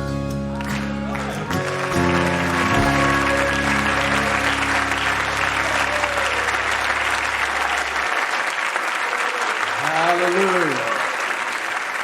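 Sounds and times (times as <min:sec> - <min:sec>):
crowd applauding and cheering: 0:00.0 - 0:12.0
band's last chord ringing: 0:01.6 - 0:07.6.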